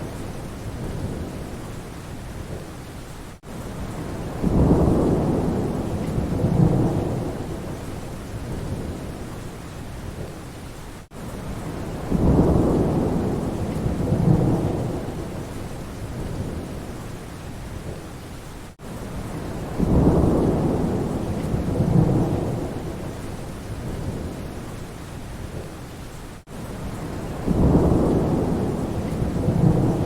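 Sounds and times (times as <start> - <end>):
steady rain: 0.0 - 30.0
thunder rumbling: 3.8 - 9.2, 11.6 - 17.0, 19.2 - 24.6, 26.8 - 30.0.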